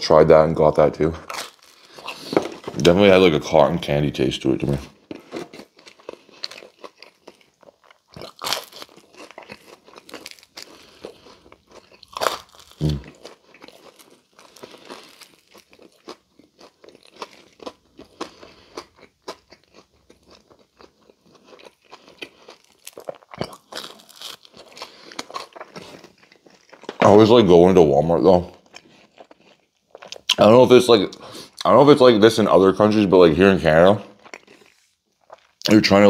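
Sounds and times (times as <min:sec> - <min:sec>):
chewing and crunching pizza: 0:00.4 - 0:36.0.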